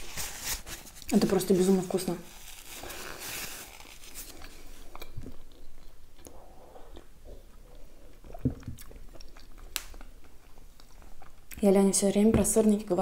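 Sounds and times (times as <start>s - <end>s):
chewing and mouth sounds: 4.3s - 11.6s.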